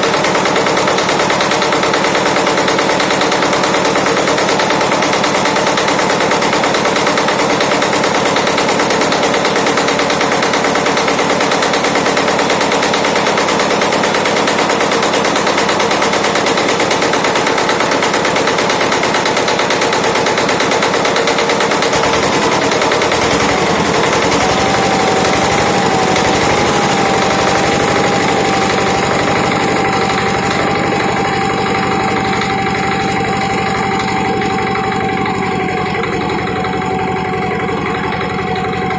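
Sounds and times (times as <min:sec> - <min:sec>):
diesel engine clatter: 0:00.0 - 0:38.9
steady whine: 0:22.0 - 0:38.9.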